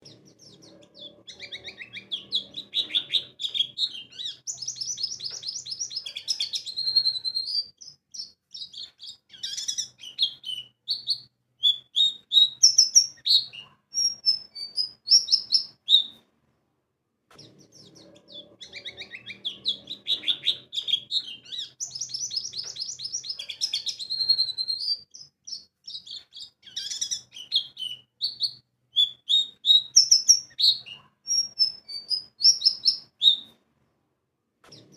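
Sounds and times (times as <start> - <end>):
bird twittering song: 0.0 - 16.2, 17.4 - 33.6.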